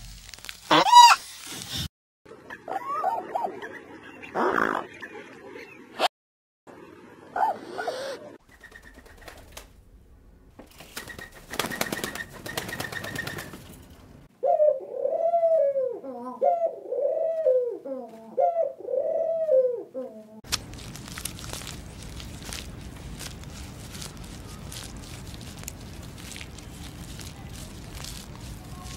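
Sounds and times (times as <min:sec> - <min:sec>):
pigeons cooing: 0:14.4 - 0:20.4.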